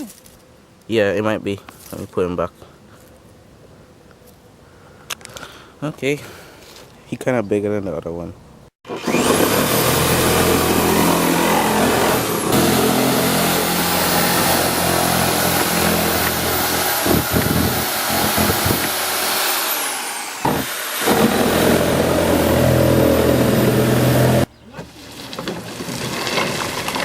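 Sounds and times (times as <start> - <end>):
jigsaw cutting plastic: 8.9 - 24.5.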